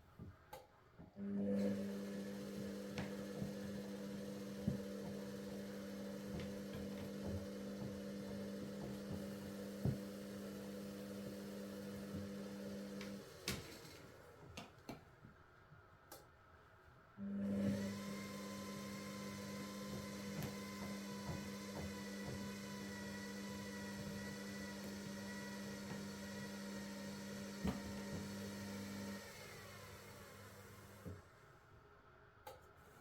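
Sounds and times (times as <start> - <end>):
washing machine drum humming: 1.5 - 13.4, 17.5 - 31.1.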